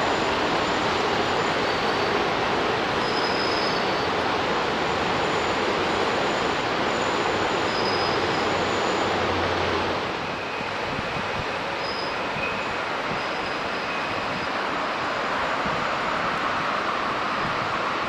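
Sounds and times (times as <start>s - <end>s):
train wheels rumbling on rails: 0.0s - 18.0s
faint high squeals: 0.6s - 2.2s, 3.0s - 4.2s, 4.9s - 9.2s, 10.2s - 14.6s.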